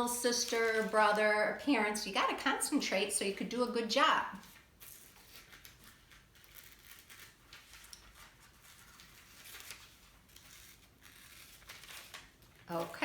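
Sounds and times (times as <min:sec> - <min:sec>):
paper rustling: 0:00.0 - 0:01.5, 0:04.3 - 0:13.0.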